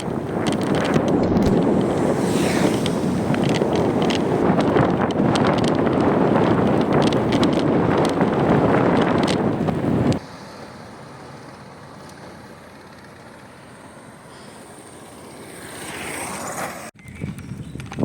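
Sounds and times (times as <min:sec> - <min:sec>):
wind buffeting microphone: 0:00.0 - 0:10.2, 0:17.0 - 0:18.0
faint road noise: 0:00.0 - 0:18.0.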